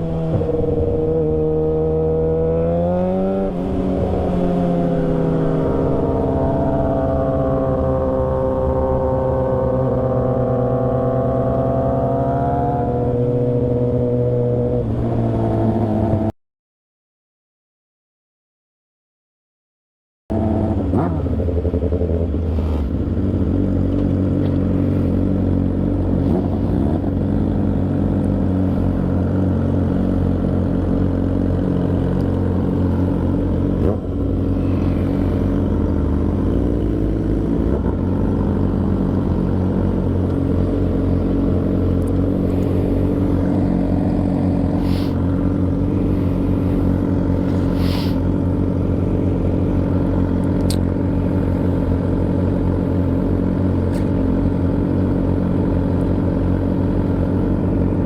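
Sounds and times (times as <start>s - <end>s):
motorcycle engine cruising: 0.0s - 16.3s, 20.3s - 58.0s
wind rumbling on microphone: 0.0s - 16.3s.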